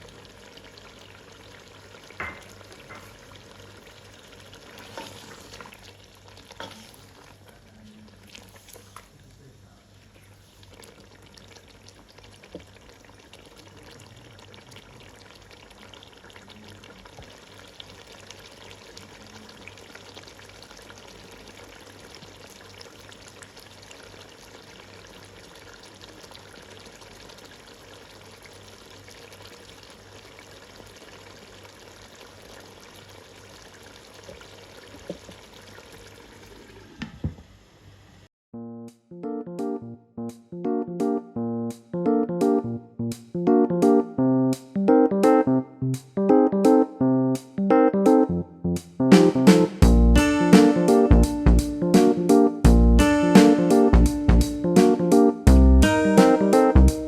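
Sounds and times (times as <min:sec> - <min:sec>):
food sizzling in a pan: 0:00.0 - 0:09.2, 0:09.9 - 0:38.3.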